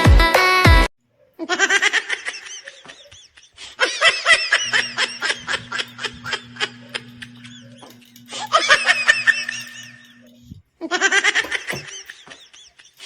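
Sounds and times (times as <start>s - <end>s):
steady low hum: 4.5s - 10.6s.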